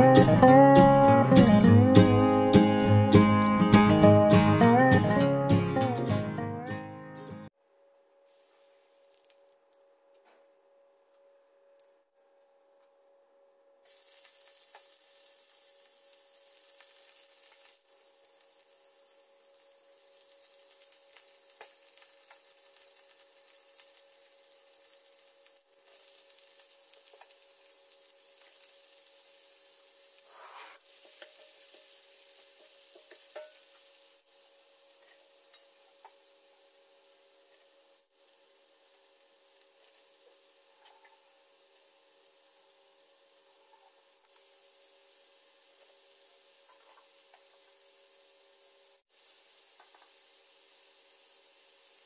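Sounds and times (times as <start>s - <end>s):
vegetables sizzling in hot oil: 13.8s - 52.0s.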